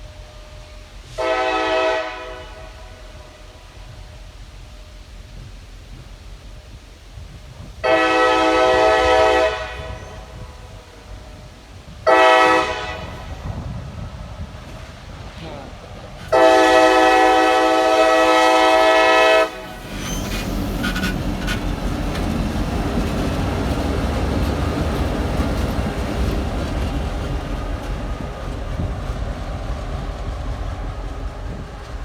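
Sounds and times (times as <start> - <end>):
train rumbling past: 0.0 - 32.0
locomotive air horn blast: 0.1 - 4.1, 7.8 - 11.0, 12.0 - 13.5, 15.4 - 19.8.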